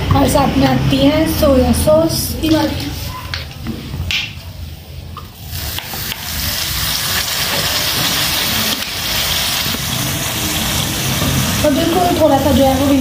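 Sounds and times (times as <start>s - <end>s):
chicken sizzling in wok: 5.3s - 13.0s.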